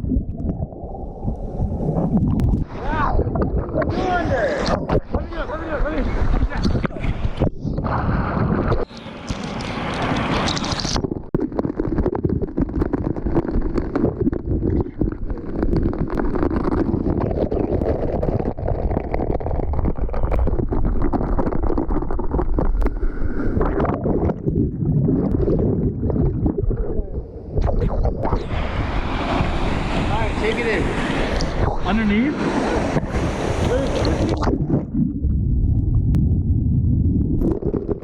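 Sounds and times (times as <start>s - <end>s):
wind buffeting microphone: 0.0s - 8.9s, 23.5s - 38.0s.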